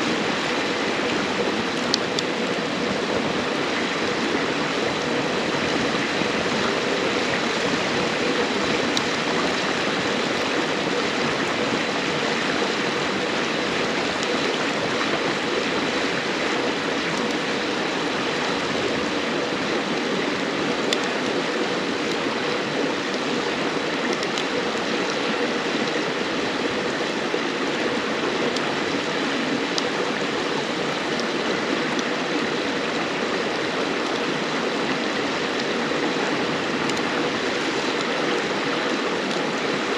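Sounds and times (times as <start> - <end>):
firewood crackling: 0.0 - 5.0
river water rushing: 0.0 - 39.9.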